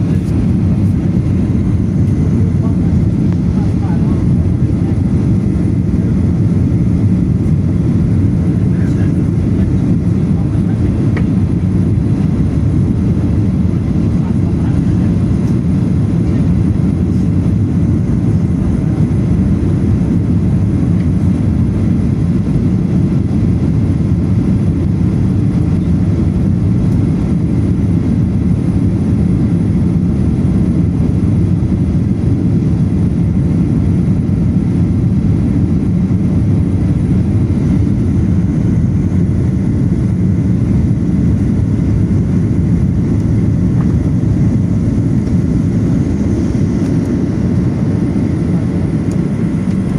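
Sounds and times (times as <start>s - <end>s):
airplane cabin engine drone: 0.0s - 49.9s.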